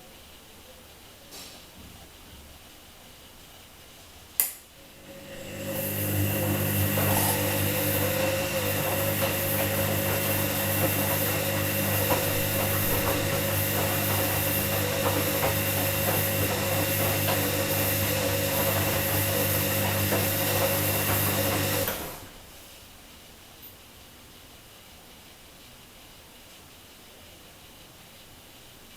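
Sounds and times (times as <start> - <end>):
washing machine motor hum: 4.8 - 22.7.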